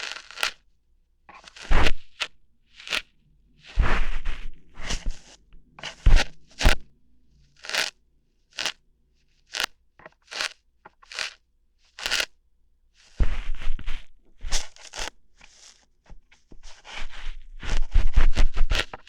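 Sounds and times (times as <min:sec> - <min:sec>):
ear hairs being plucked: 0:00.0 - 0:00.6, 0:01.3 - 0:06.9, 0:07.5 - 0:08.8, 0:09.4 - 0:12.3, 0:13.0 - 0:15.8.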